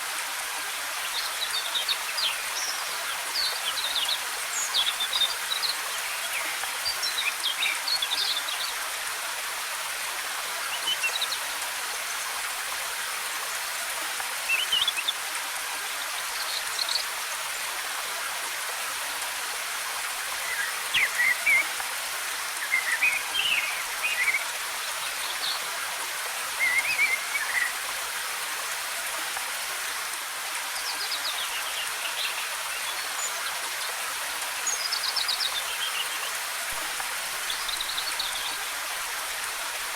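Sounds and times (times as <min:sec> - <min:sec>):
waterfall hissing: 0:00.0 - 0:39.9
forest birds chirping: 0:20.3 - 0:28.0, 0:30.7 - 0:39.7.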